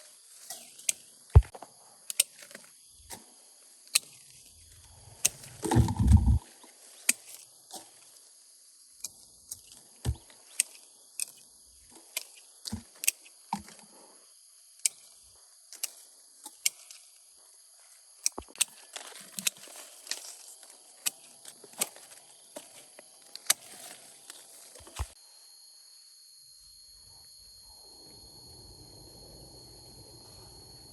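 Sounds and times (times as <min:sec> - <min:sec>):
sharp clicks and knocks: 0:05.7 - 0:06.4
steady high-pitched drone: 0:25.3 - 0:30.9.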